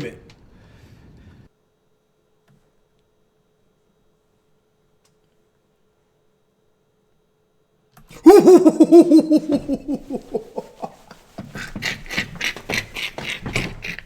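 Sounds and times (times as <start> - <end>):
person laughing: 8.2 - 14.0.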